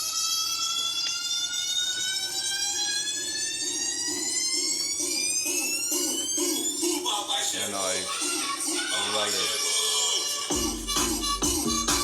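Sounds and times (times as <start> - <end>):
pulsing beat: 3.2 - 7.6, 10.1 - 12.0.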